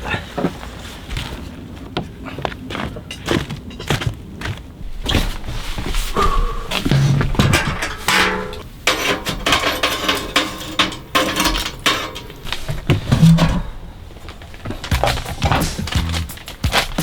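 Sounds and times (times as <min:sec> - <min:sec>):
hard objects clinking and clattering: 0:04.8 - 0:17.0.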